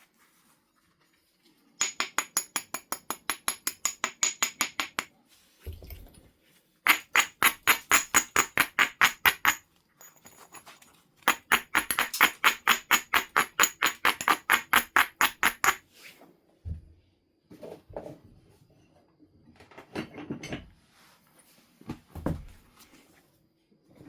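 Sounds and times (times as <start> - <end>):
stone striking flint: 1.8 - 6.0, 6.9 - 9.6, 11.2 - 15.8.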